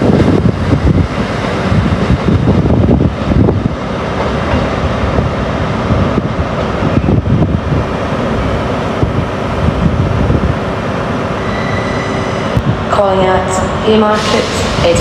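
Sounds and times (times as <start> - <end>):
wind on microphone: 0.0 - 10.9, 12.3 - 13.0
train rumbling past: 0.0 - 15.0.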